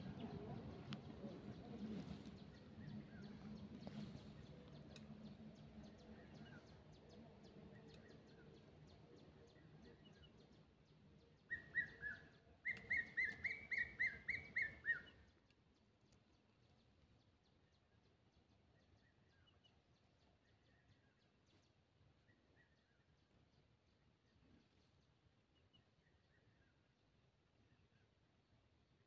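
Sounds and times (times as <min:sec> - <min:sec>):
faint low hum: 0:00.0 - 0:13.4
bird calling: 0:11.5 - 0:15.2.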